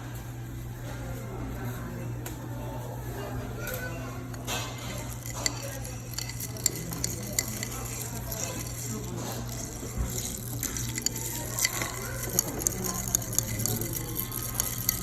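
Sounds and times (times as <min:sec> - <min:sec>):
ice cubes clinking against glass: 0:04.3 - 0:15.0
liquid sloshing: 0:04.3 - 0:15.0.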